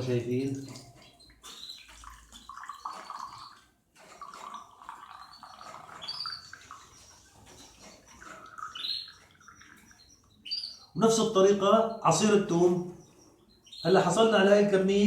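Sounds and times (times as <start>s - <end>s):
juice dripping into a glass: 2.0s - 7.0s.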